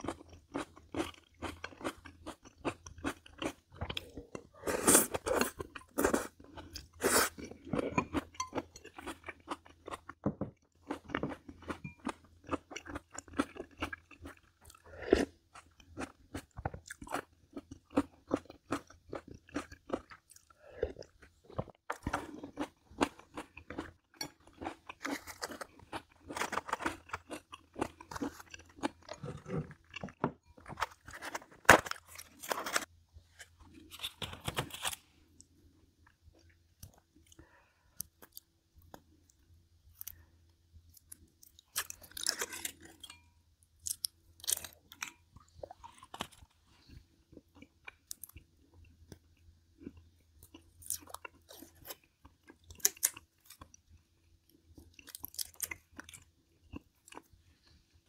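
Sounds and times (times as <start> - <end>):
crisp chewing crunches: 12.4 - 35.0, 49.8 - 53.8.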